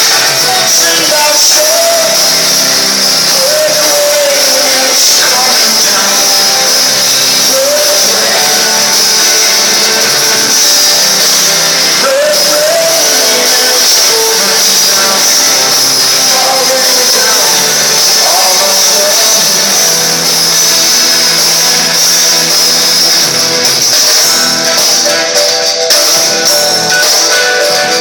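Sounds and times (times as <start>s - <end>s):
man singing: 0.0s - 22.2s
live rock band: 0.0s - 28.0s.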